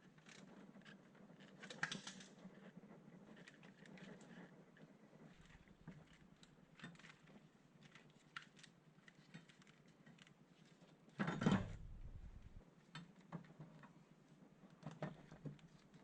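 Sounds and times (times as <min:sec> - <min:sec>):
low rumble: 0:11.6 - 0:12.6.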